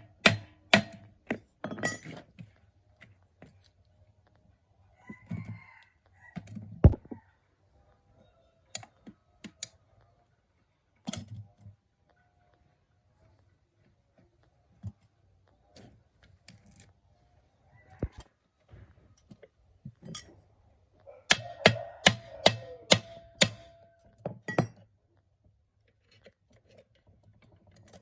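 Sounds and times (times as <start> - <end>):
metal tools clinking: 1.7 - 2.2.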